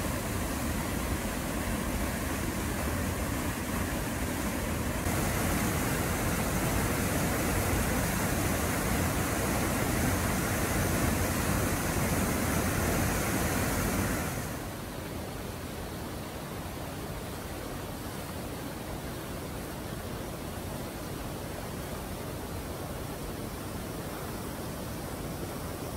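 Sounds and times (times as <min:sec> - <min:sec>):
water rushing over rocks: 0:00.0 - 0:15.1.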